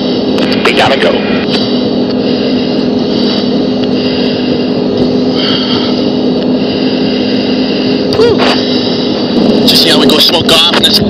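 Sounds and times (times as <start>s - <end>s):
jet engine drone in cockpit: 0.0s - 11.0s
rushing air: 0.0s - 11.0s.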